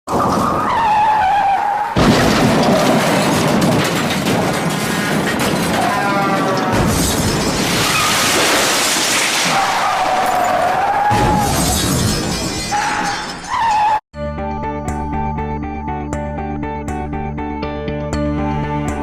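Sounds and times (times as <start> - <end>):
car crash: 0.1 - 14.0
glass shattering: 2.0 - 14.0
tyres screeching: 12.6 - 14.0
music: 14.2 - 19.0.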